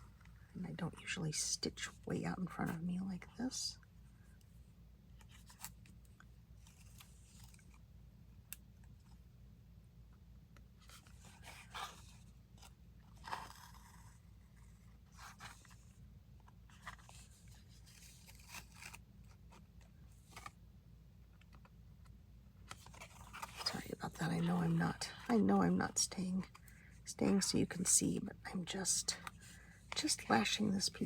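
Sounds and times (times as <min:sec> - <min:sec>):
low steady hum: 0:00.0 - 0:31.0
paper and thread rustling: 0:05.2 - 0:07.8, 0:10.8 - 0:20.6, 0:22.6 - 0:27.9, 0:28.5 - 0:31.0.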